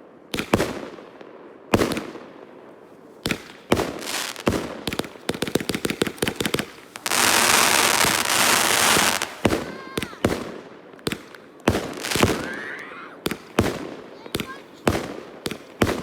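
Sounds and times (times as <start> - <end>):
fireworks bangs: 3.2 - 16.0
fireworks crackling: 3.2 - 16.0.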